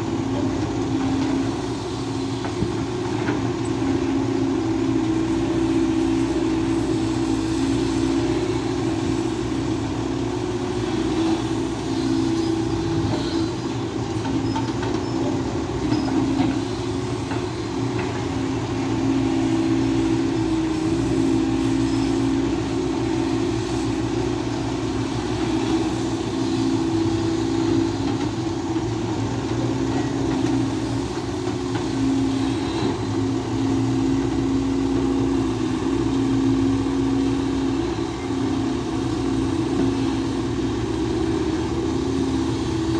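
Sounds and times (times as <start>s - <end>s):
excavator engine and hydraulics droning: 0.0s - 42.9s.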